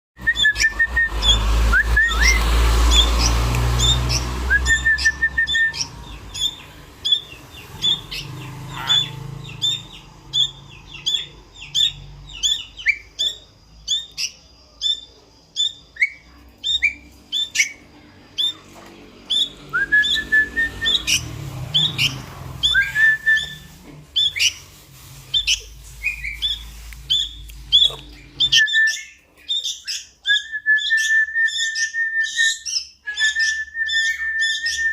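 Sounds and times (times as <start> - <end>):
rising whistle notes: 0.2 - 3.2, 3.8 - 5.9, 19.3 - 21.2, 22.0 - 23.7
bird chick begging chirps: 2.1 - 18.7, 19.3 - 24.7, 25.3 - 34.9.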